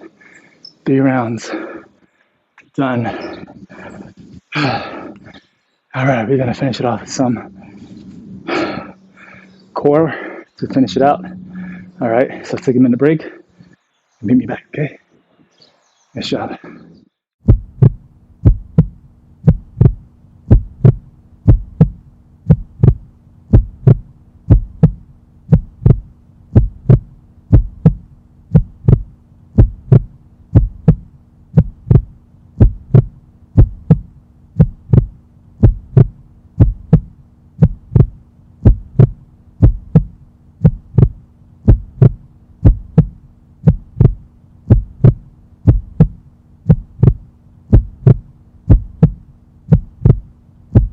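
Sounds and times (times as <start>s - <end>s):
steady low hum: 2.6s - 13.8s, 17.4s - 50.9s
heartbeat-style thumps: 11.0s - 12.1s, 17.4s - 50.9s.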